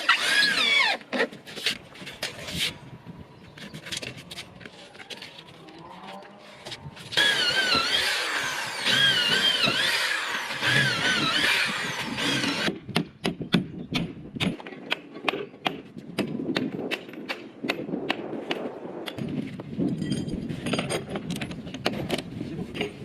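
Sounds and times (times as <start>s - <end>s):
power tool motor whine: 7.2s - 12.7s.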